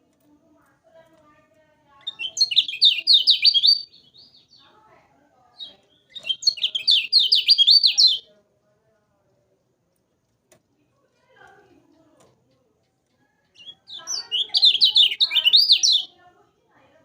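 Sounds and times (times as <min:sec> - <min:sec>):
songbird chattering song: 0:01.9 - 0:08.3, 0:11.5 - 0:16.6.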